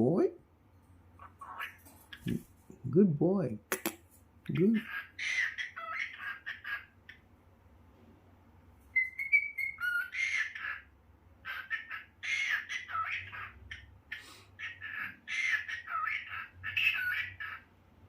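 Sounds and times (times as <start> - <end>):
cockatiel whistling and chattering: 4.5 - 7.2, 8.9 - 13.9, 14.6 - 17.6.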